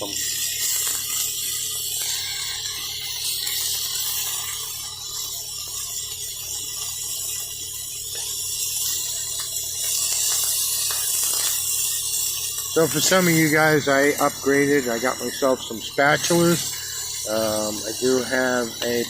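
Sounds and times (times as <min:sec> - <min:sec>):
meat sizzling in a skillet: 0:00.0 - 0:19.0.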